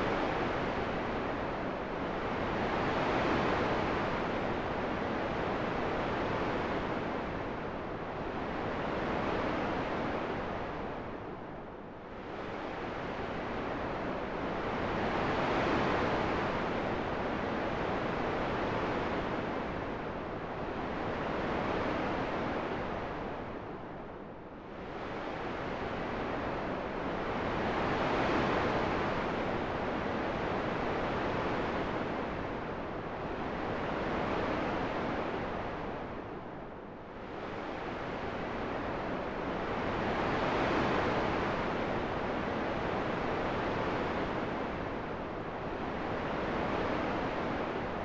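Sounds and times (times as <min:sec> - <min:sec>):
rushing wind: 0:31.8 - 0:48.0.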